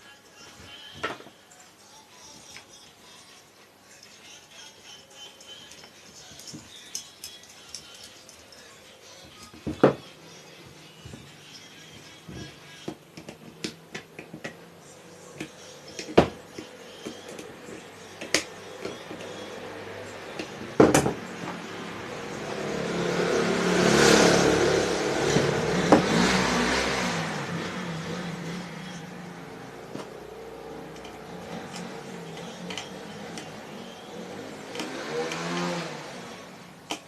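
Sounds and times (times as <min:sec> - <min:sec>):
clicks and knocks of handling: 0:12.3 - 0:14.6.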